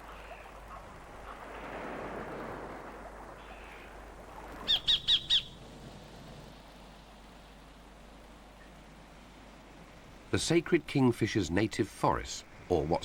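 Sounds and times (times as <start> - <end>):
kingfisher calling: 4.7 - 5.6.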